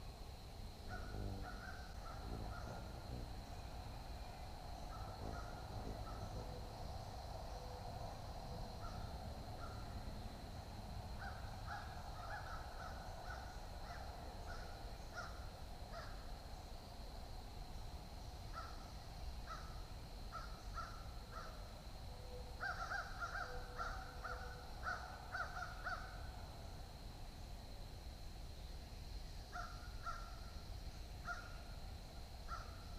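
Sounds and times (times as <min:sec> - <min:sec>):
low background rumble: 0:00.0 - 0:19.2.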